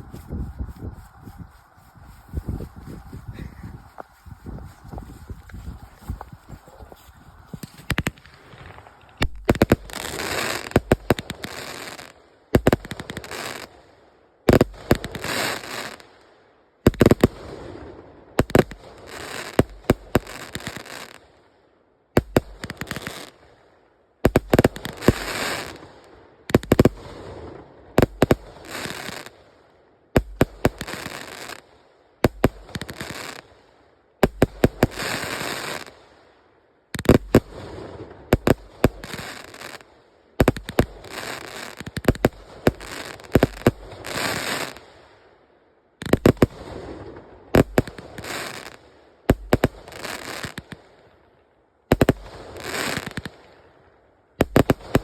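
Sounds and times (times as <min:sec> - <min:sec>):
fizzing firework crackle: 0:05.8 - 0:13.7.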